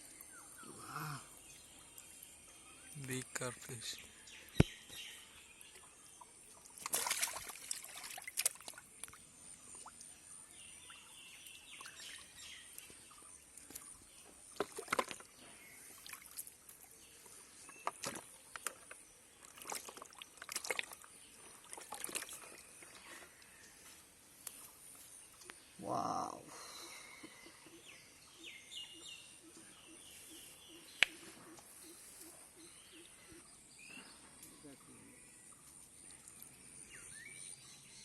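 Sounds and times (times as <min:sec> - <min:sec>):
water splashing and trickling: 0:00.0 - 0:26.4.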